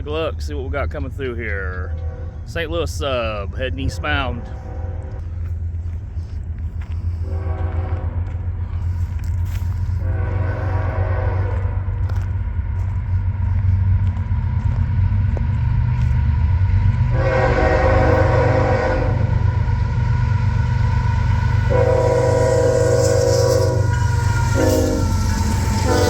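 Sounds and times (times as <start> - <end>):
train rumbling: 0.0 - 26.0
locomotive air horn blasts: 4.1 - 5.2, 7.2 - 8.3, 9.8 - 11.8, 17.1 - 19.4, 21.6 - 26.0.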